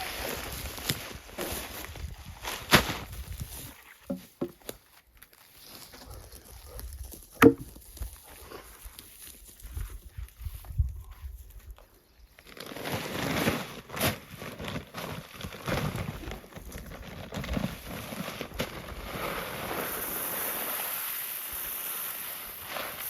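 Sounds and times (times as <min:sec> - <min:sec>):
crunching and rustling: 0:00.6 - 0:19.3
sharp knocks: 0:07.4 - 0:07.7.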